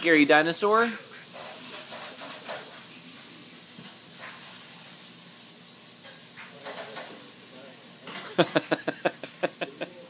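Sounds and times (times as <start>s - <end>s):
room tone hiss: 0.0s - 10.0s.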